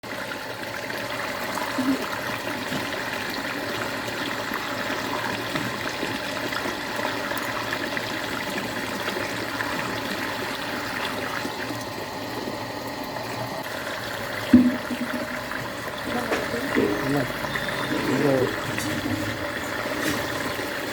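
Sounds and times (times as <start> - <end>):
water running: 0.0 - 20.9
thump: 14.5 - 15.2.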